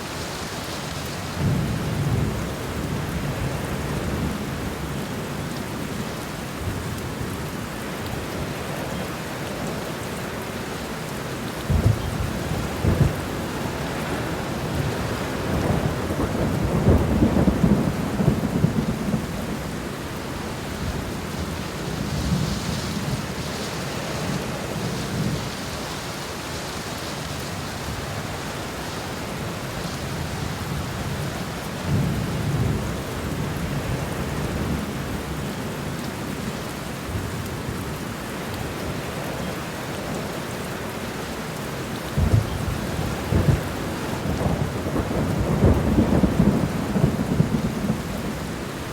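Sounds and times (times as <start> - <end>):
steady rain: 0.0 - 48.9
thunder rumbling: 11.7 - 25.6, 42.1 - 48.9.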